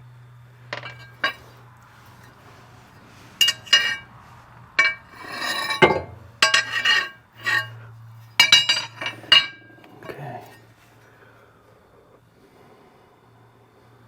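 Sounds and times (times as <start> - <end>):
steady low hum: 0.0 - 14.0
scraping rattle: 0.7 - 4.1, 4.8 - 10.6
metal tools clinking: 0.8 - 2.4, 3.4 - 4.1, 4.8 - 7.8, 8.4 - 10.6.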